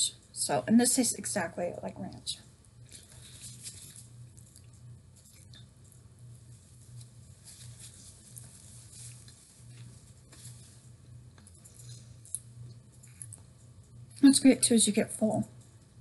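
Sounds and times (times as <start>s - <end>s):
low steady hum: 0.0s - 16.0s
paper napkin rustling: 2.8s - 13.7s.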